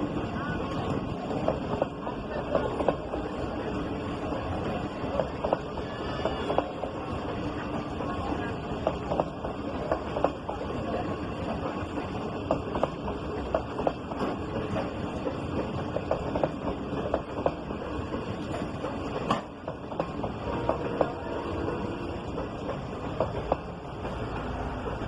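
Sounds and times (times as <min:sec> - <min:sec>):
train rumbling: 0:00.0 - 0:25.0.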